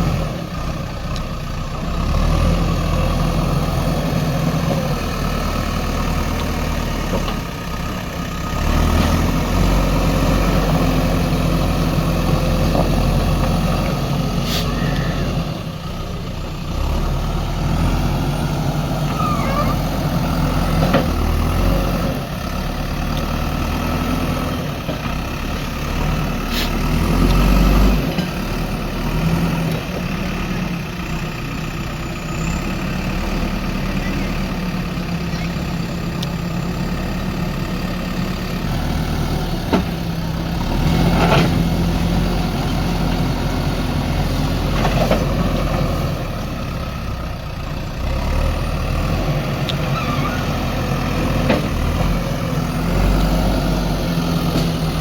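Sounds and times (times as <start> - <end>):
diesel engine revving: 0.0 - 55.0.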